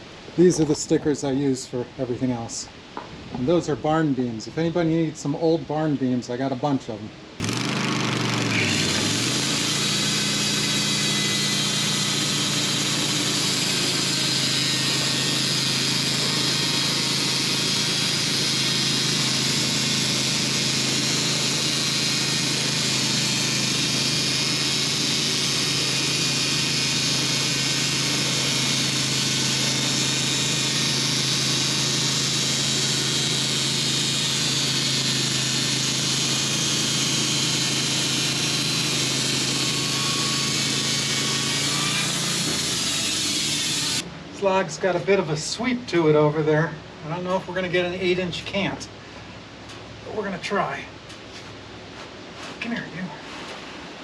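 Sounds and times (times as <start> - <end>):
sawmill engine running: 7.4 - 46.3.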